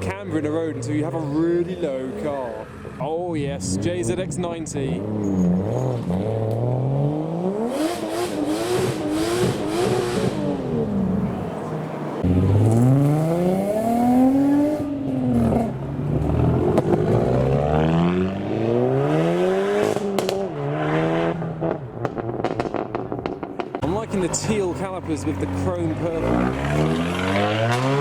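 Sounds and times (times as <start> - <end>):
car engine revving: 0.0 - 28.0
sharp cracks: 22.0 - 23.9.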